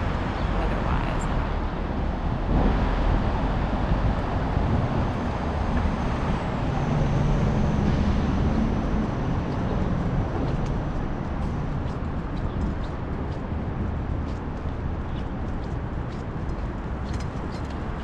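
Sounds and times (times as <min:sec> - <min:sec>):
city street traffic: 0:00.0 - 0:18.0
passing vehicle engine hum: 0:00.0 - 0:18.0.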